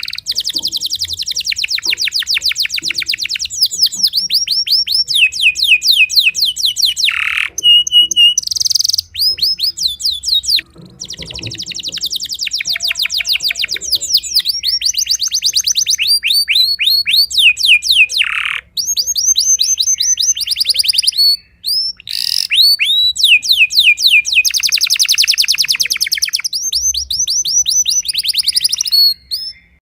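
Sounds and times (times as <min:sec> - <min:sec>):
canary singing trilled phrases: 0:00.0 - 0:29.8.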